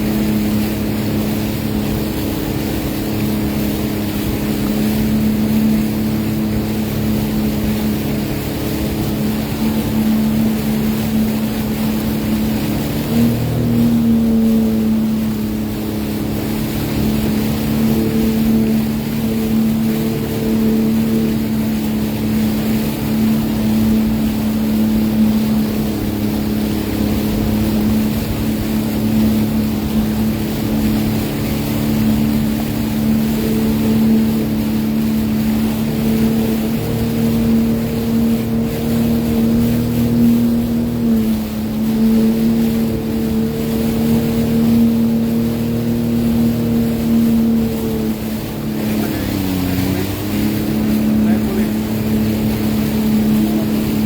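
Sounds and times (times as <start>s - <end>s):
personal watercraft engine running: 0.0s - 54.0s.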